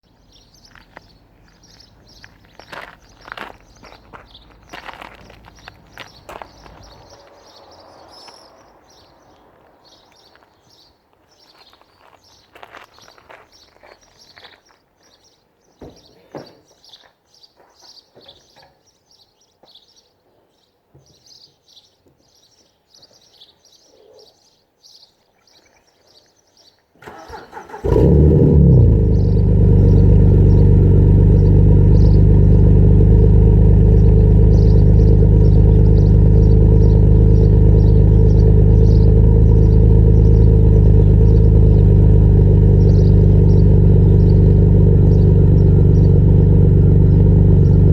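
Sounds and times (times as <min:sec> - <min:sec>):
birds chirping: 0:00.0 - 0:47.9
car engine cranking and starting: 0:27.0 - 0:47.9
car engine idling loudly: 0:28.8 - 0:47.9.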